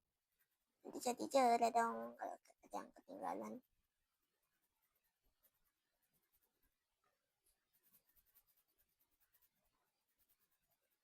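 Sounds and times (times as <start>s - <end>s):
colouring tool scratching paper: 0.2s - 11.0s.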